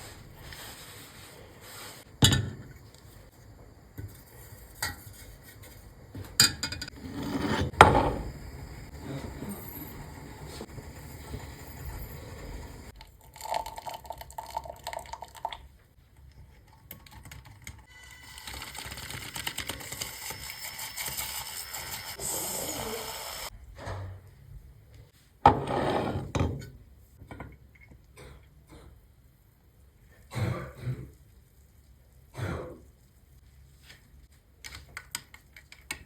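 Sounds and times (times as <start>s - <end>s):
steady hissing: 7.7s - 12.9s.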